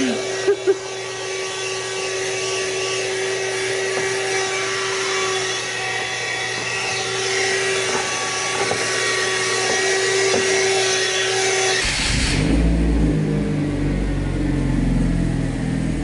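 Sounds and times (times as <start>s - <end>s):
car engine idling: 11.8s - 16.0s.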